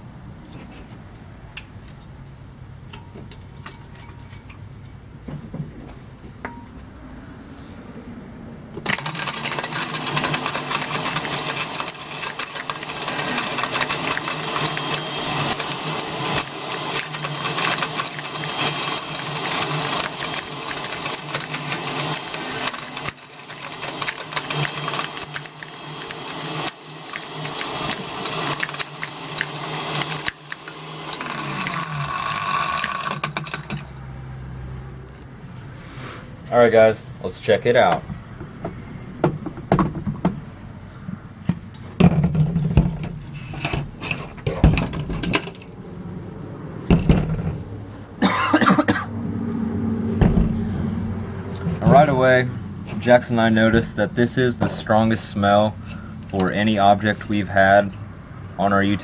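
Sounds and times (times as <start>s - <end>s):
blender grinding and rattling: 8.8s - 34.0s.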